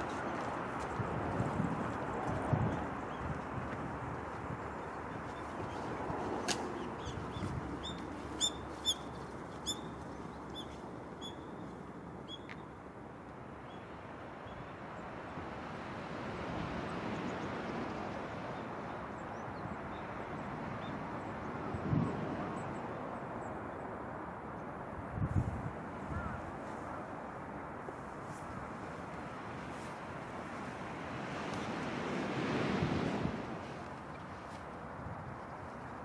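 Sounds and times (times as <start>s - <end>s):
bird chirping: 7.0s - 9.9s
surf washing on beach: 15.1s - 23.1s, 25.7s - 36.0s.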